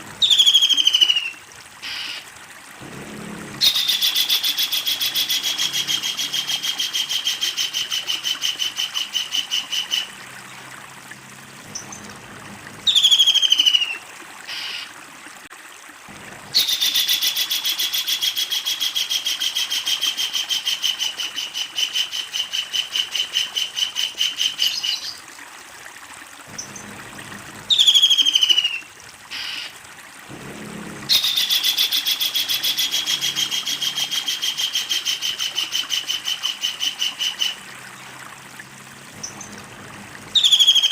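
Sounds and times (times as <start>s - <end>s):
kingfisher cackling call: 3.6s - 10.2s, 27.7s - 29.7s, 31.1s - 37.6s.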